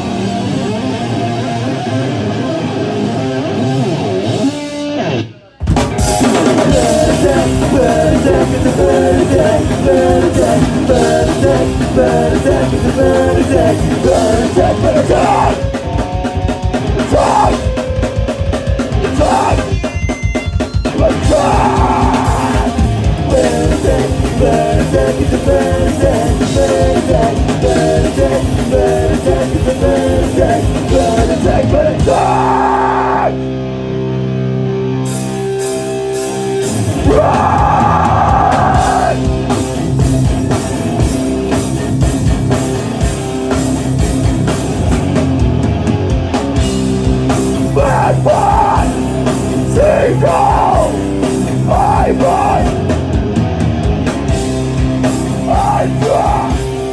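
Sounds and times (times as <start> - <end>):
punk rock band playing live: 0.0 - 56.9.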